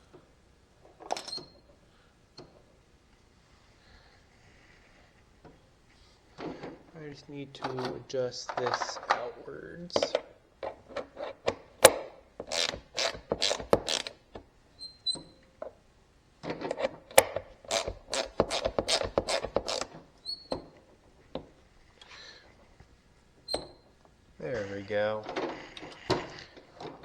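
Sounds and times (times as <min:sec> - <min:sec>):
ratchet wrench clicking: 0:11.8 - 0:14.1, 0:17.2 - 0:19.9.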